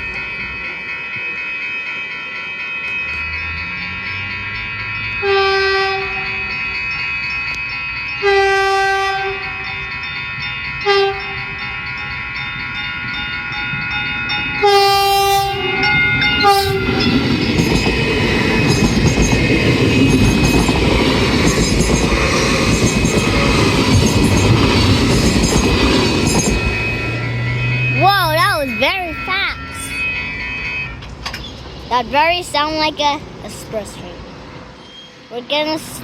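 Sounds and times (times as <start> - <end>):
train horn blasts: 5.2 - 6.5, 8.2 - 9.7, 10.8 - 11.5, 14.6 - 17.1, 26.6 - 31.1
train wheels clattering on rails: 10.8 - 28.9, 30.9 - 34.0.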